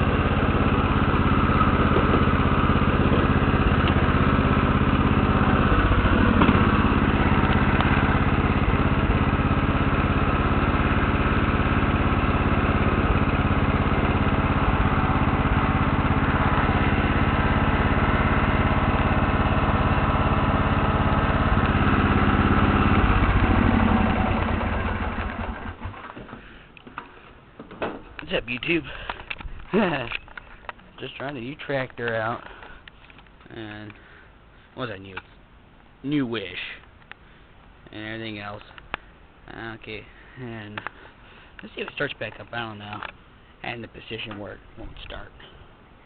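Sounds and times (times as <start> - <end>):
lawn tractor engine idling: 0.0 - 32.9.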